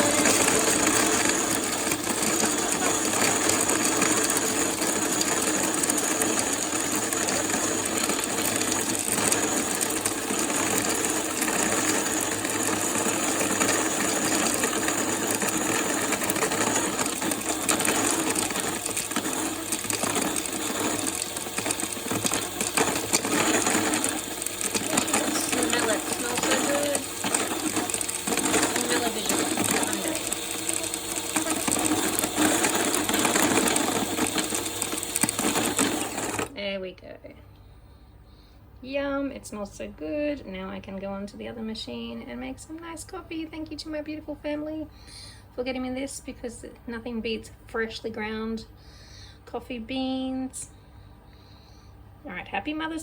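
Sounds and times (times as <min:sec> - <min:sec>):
coffee grinder grinding beans: 0:00.0 - 0:36.6.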